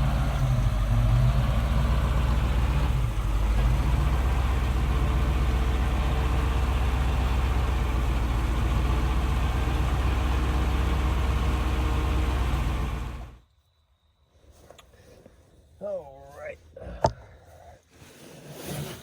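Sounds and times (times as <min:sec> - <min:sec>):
truck engine humming: 0:00.0 - 0:13.4.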